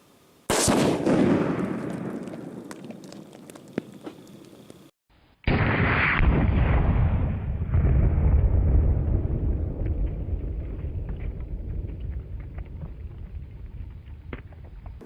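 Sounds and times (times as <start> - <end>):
sharp crack: 0.5 - 4.9
faint crackles: 1.4 - 4.9
explosion rumble: 5.5 - 14.4.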